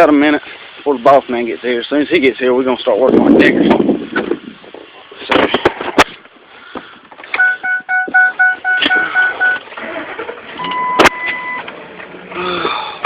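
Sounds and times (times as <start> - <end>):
steady electronic tone: 7.4 - 9.6
vehicle warning chime beeping: 7.4 - 10.0, 10.6 - 11.7.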